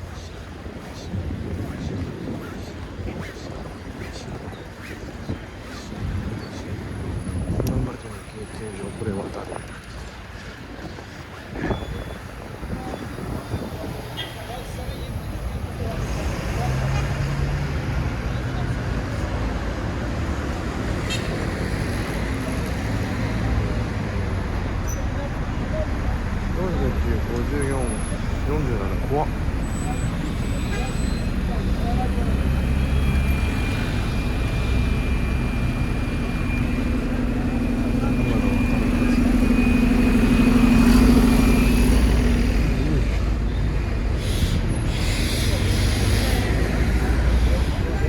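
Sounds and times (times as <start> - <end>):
road traffic rumble: 0.0 - 48.0
large vehicle engine humming: 11.6 - 48.0.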